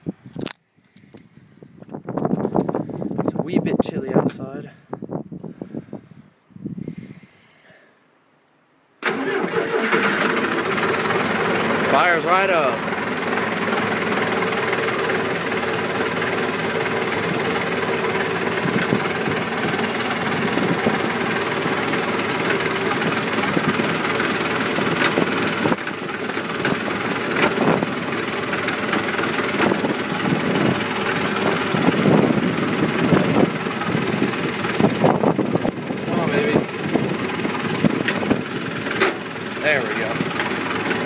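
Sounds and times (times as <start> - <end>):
tractor diesel engine idling: 9.0 - 41.0
sharp clicks and knocks: 24.2 - 29.8, 38.9 - 39.2, 40.3 - 41.0.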